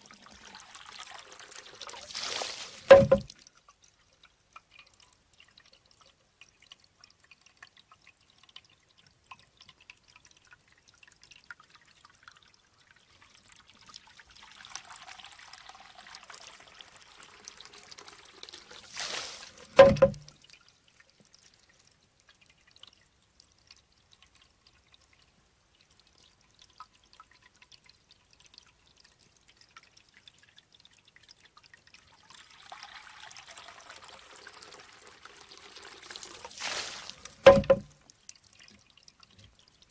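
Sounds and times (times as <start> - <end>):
water running: 0.0 - 3.4, 14.5 - 20.4, 32.4 - 38.1
water dripping: 0.0 - 39.9
bamboo tube knocking on stone: 2.9 - 3.3, 19.8 - 20.3, 37.4 - 37.9.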